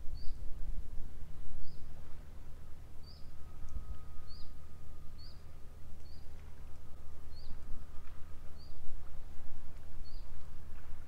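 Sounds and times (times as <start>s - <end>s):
bird chirping: 3.0s - 4.6s.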